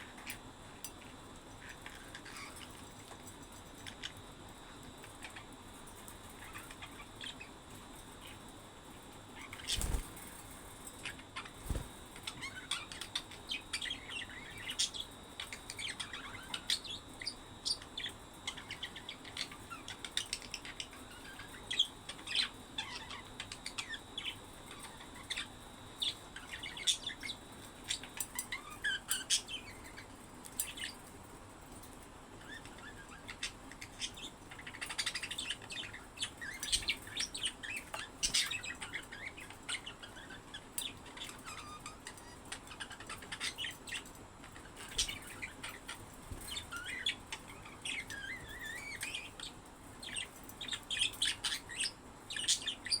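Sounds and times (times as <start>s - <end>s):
budgerigars chirping: 9.4s - 10.1s, 32.4s - 53.0s.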